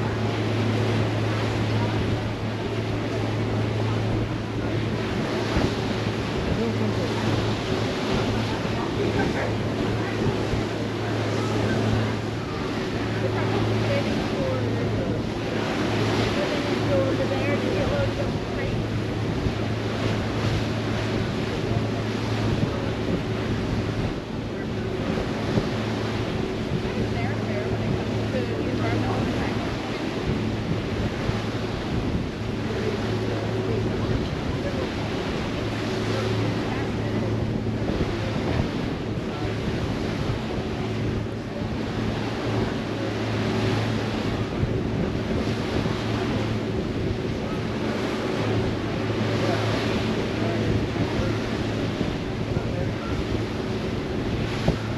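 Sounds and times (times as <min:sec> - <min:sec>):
ship engines droning: 0:00.0 - 0:54.9
water noise: 0:00.0 - 0:54.9
wind buffeting microphone: 0:00.0 - 0:54.9.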